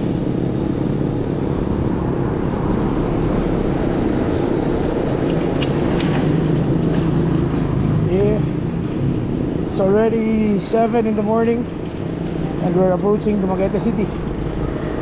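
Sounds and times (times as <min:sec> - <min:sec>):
wind rush: 0:00.0 - 0:11.2
bicycle road noise: 0:00.0 - 0:15.0.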